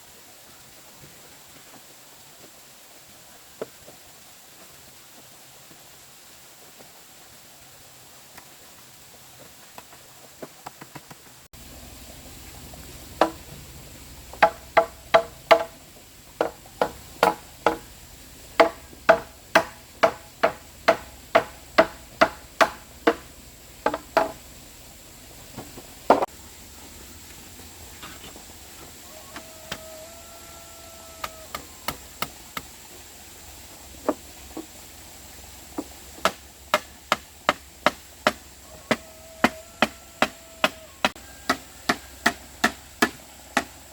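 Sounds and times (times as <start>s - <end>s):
hand tool striking wood: 13.2s - 13.5s, 14.3s - 15.8s, 16.4s - 17.9s, 18.6s - 24.4s, 25.6s - 26.3s, 31.2s - 32.7s, 35.8s - 43.8s.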